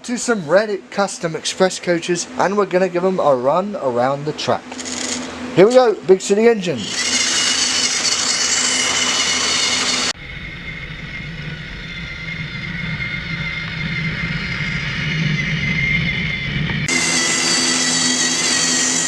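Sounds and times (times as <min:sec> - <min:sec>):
toy train motor whine: 0:04.7 - 0:05.4, 0:06.6 - 0:19.0
toy train rumbling on track: 0:04.8 - 0:05.3, 0:06.9 - 0:19.0.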